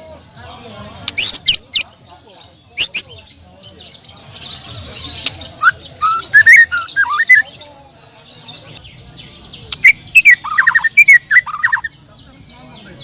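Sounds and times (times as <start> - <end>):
high twittering: 5.2 - 7.5, 9.7 - 11.9
bird singing whistled phrases: 5.6 - 7.5, 9.8 - 11.9.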